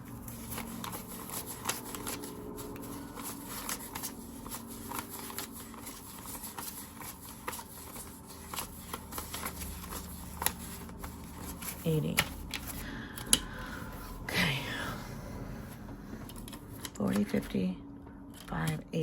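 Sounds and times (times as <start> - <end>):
banknotes being counted by hand: 0.0 - 14.2.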